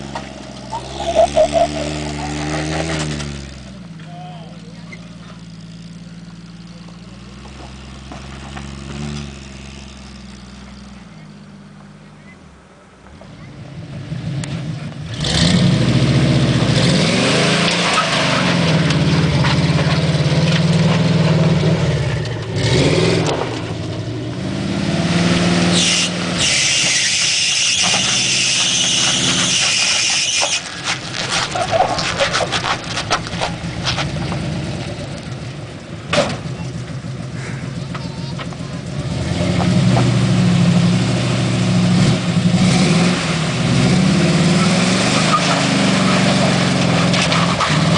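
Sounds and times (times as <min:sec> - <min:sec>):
car engine revving: 0:00.0 - 0:04.0, 0:04.6 - 0:12.1, 0:13.6 - 0:47.9
knocks and clatter: 0:27.8 - 0:34.5.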